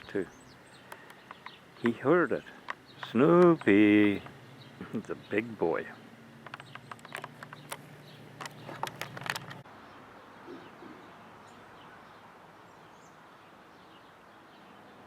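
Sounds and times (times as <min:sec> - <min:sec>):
sharp clicks: 0:00.8 - 0:05.2, 0:06.4 - 0:09.6
faint bird chirps: 0:09.8 - 0:15.0.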